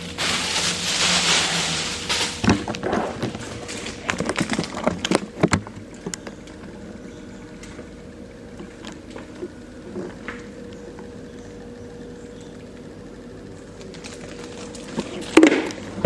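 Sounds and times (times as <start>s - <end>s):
groceries knocking and clattering: 0.0s - 6.8s
faint steady hum: 0.0s - 16.0s.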